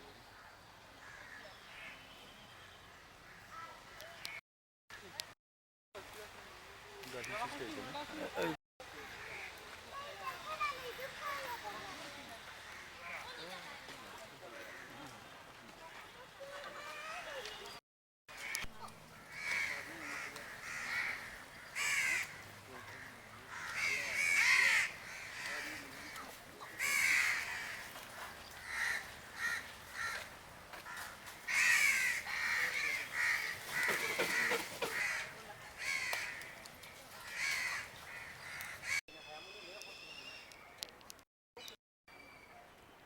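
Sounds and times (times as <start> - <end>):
crows cawing: 1.0 - 2.0, 9.2 - 9.6, 18.3 - 39.0.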